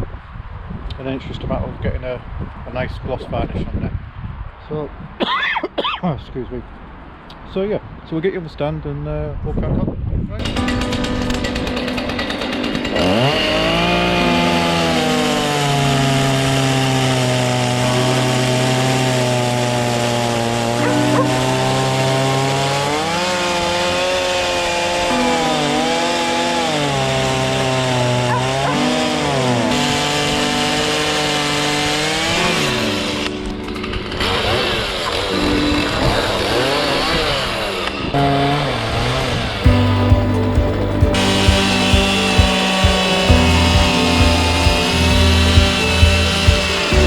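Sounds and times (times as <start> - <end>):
chainsaw cutting wood: 10.4 - 47.0.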